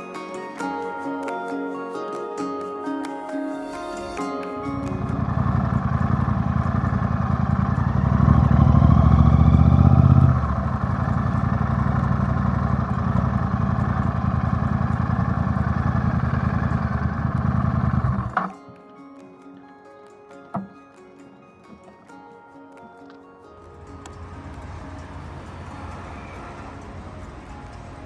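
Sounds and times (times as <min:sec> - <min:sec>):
vehicle engine idling: 0:04.8 - 0:18.4, 0:23.7 - 0:28.0.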